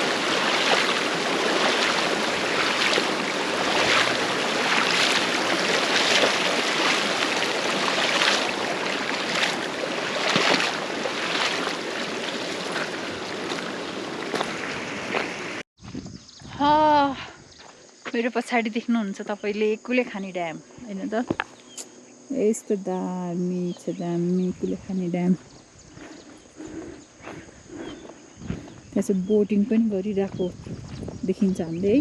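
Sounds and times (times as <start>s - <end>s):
mountain stream rushing: 0.0s - 15.6s.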